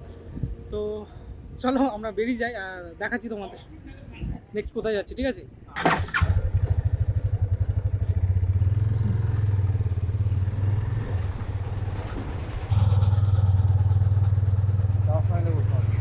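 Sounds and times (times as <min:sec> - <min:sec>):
motorcycle engine running: 0:06.0 - 0:16.0.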